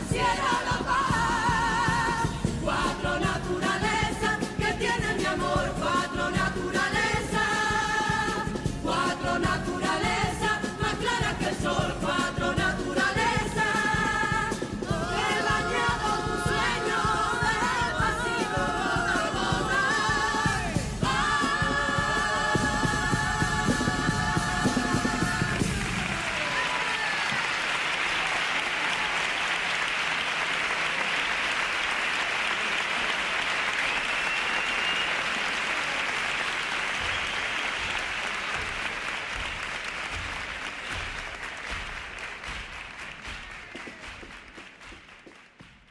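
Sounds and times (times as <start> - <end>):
choir singing: 0.0 - 26.7
percussion: 0.0 - 45.9
audience applause: 25.6 - 45.8.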